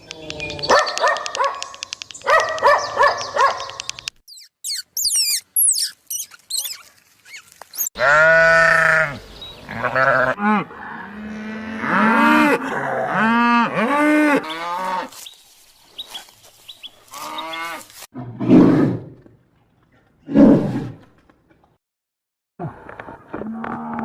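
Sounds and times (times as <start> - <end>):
farm animals calling: 0.4 - 15.2, 16.0 - 18.1.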